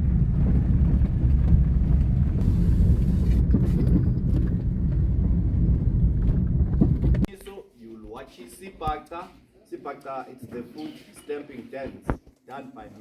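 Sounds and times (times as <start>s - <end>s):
loud low rumble: 0.0s - 7.3s.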